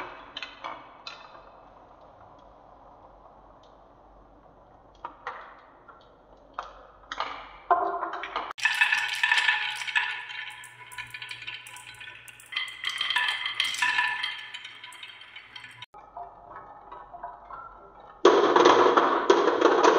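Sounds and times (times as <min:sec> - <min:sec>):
marbles rattling in wooden run: 0:08.6 - 0:15.9.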